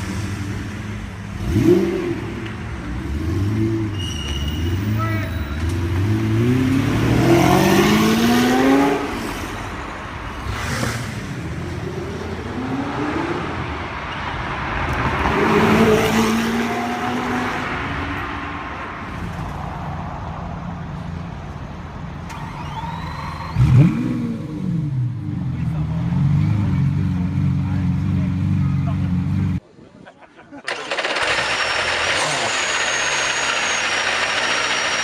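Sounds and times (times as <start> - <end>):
car engine accelerating hard: 0.0 - 3.9, 5.7 - 9.5, 30.7 - 35.0.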